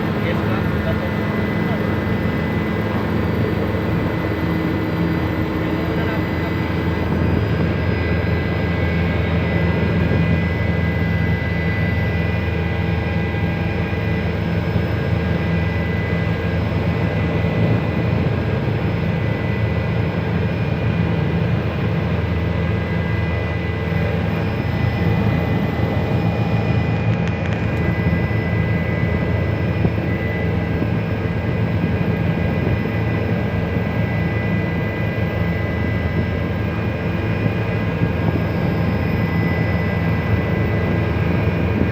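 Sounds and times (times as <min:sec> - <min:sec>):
helicopter engine and rotor: 0:00.0 - 0:41.9.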